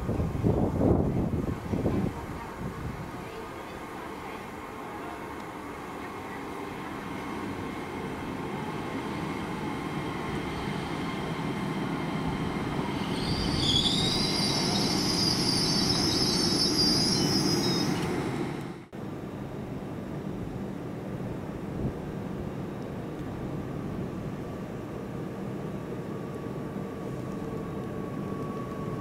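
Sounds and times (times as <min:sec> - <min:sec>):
train rumbling past: 0:00.0 - 0:19.5, 0:23.4 - 0:29.0
metallic wheel squeal: 0:13.1 - 0:18.0.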